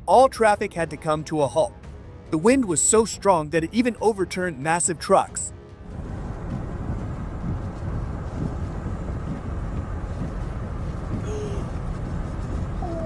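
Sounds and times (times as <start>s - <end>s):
storm wind buffeting microphone: 5.8s - 13.0s.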